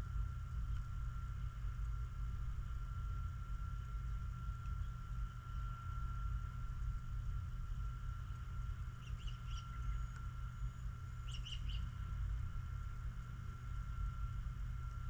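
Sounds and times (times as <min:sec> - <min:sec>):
steady low rumble: 0:00.0 - 0:15.0
small bird chirping: 0:09.0 - 0:10.1, 0:11.2 - 0:12.0.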